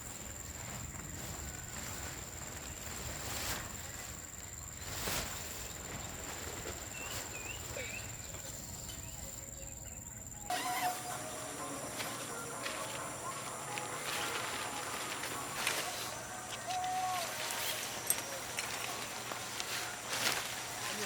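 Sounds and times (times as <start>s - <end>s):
high-pitched insect drone: 6.3s - 21.0s.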